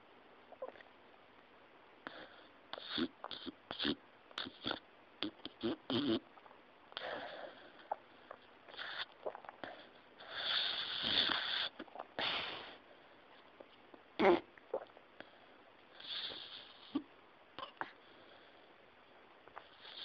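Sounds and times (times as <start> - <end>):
dog snoring: 2.0 - 6.3, 7.0 - 12.8, 15.9 - 17.0, 19.5 - 20.0.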